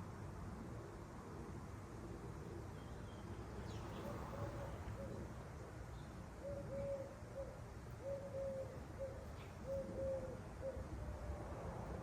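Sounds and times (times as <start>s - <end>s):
dove cooing: 6.4s - 10.9s.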